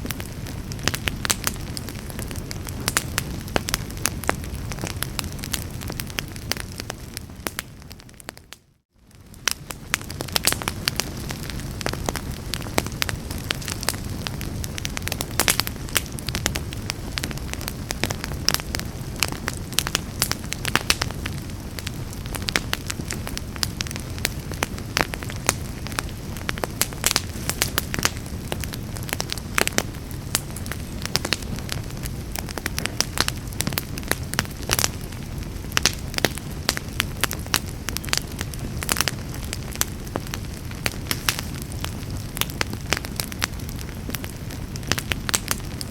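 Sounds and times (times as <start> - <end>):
fire crackling and popping: 0.0 - 45.9
low rumble of flames: 0.0 - 45.9.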